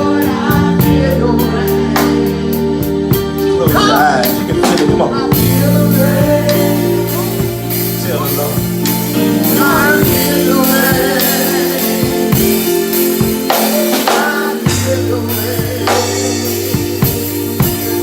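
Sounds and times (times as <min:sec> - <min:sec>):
keyboard chords: 0:00.0 - 0:18.0
person singing: 0:00.0 - 0:18.0
drum strikes: 0:04.5 - 0:18.0.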